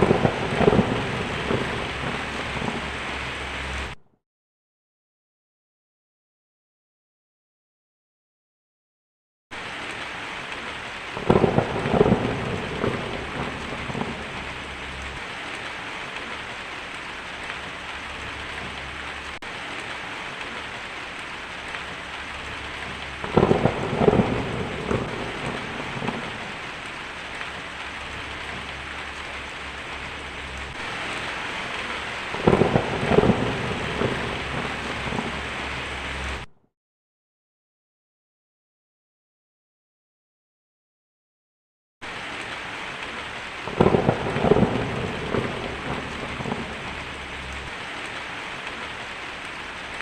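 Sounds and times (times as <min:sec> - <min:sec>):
heavy rain: 0:00.0 - 0:04.0, 0:09.5 - 0:36.5, 0:42.0 - 0:50.0
thunder rolling: 0:00.0 - 0:04.0, 0:11.1 - 0:16.2, 0:21.8 - 0:36.5, 0:43.6 - 0:47.8.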